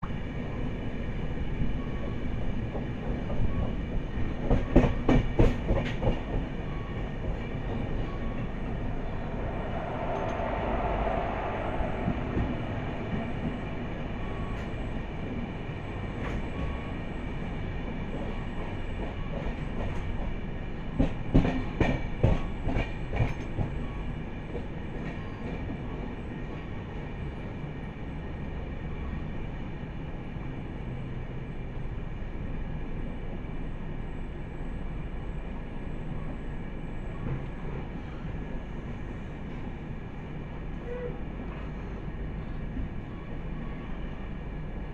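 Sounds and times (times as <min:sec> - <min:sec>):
train rumbling: 0:00.0 - 0:44.9
train wheels clacking on rails: 0:02.4 - 0:08.8, 0:18.0 - 0:26.6.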